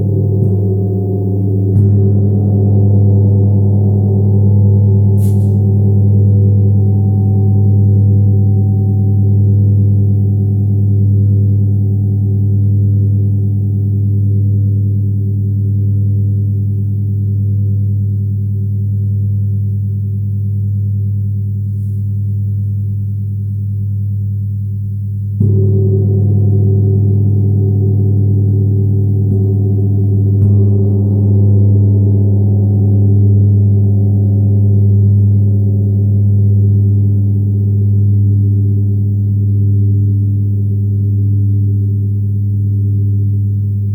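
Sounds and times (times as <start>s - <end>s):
gong ringing: 0.0s - 8.6s.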